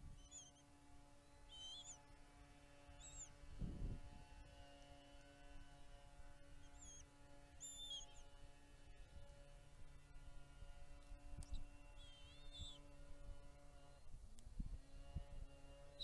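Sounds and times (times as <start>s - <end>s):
high-pitched bird chirps: 1.5s - 2.0s, 3.0s - 3.3s, 7.6s - 8.2s, 12.0s - 12.8s.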